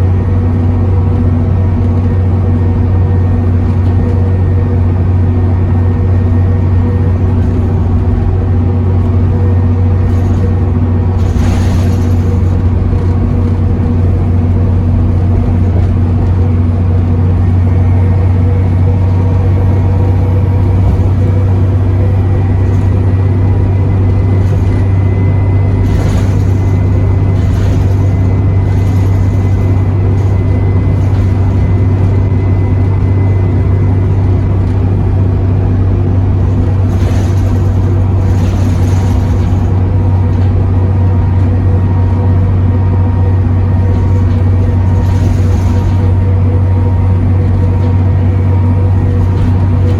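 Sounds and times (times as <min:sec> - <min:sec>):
bus engine droning: 0:00.0 - 0:49.9
brief rattles: 0:09.0 - 0:16.8, 0:23.9 - 0:33.6, 0:36.4 - 0:41.6, 0:43.7 - 0:49.9.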